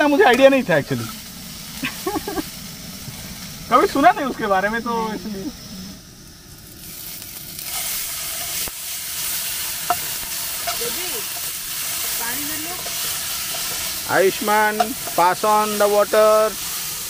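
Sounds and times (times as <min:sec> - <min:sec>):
onions frying in hot oil: 0:00.0 - 0:17.0
metal spoon scraping a pan: 0:07.6 - 0:15.8.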